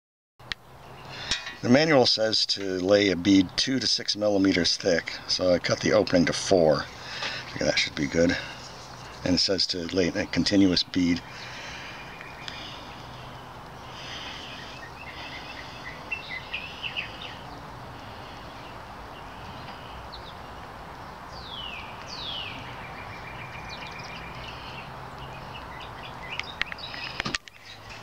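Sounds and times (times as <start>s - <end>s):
birds chirping: 0.4s - 28.0s
outdoor background hiss: 0.4s - 28.0s
downward-sweeping bird calls: 11.0s - 28.0s.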